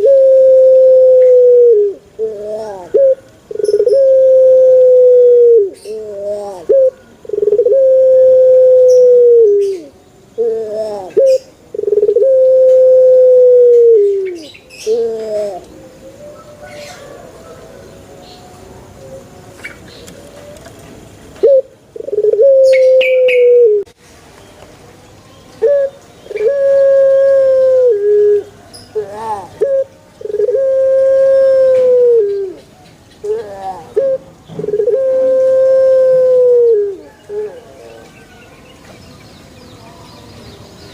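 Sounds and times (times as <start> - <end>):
dove cooing: 0.0 - 20.8, 21.4 - 23.9, 25.6 - 32.6, 33.2 - 38.4
small birds chirping: 2.3 - 4.1, 14.0 - 15.8.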